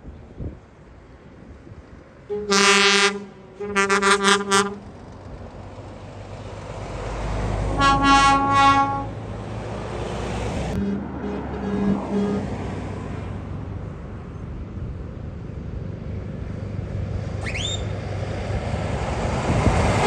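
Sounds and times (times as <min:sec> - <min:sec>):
truck engine rumble: 0:00.0 - 0:20.0
higher-pitched horn toots: 0:02.3 - 0:04.8, 0:07.8 - 0:09.2, 0:10.8 - 0:12.6, 0:17.4 - 0:17.9
truck air horn blasts: 0:02.3 - 0:04.9, 0:07.7 - 0:09.2, 0:10.7 - 0:12.7, 0:17.4 - 0:17.9.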